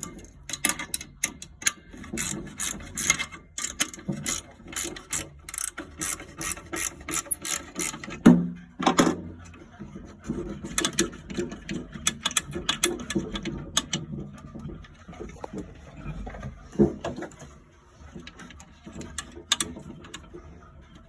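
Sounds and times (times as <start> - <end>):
hand ratchet clicking: 0.0 - 8.1.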